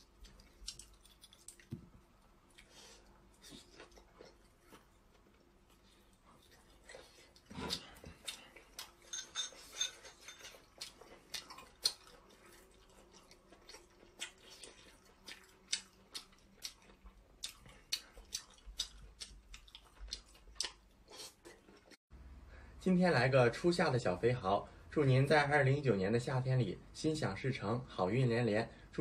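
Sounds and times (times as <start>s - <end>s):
person chewing wetly: 0.0s - 22.0s.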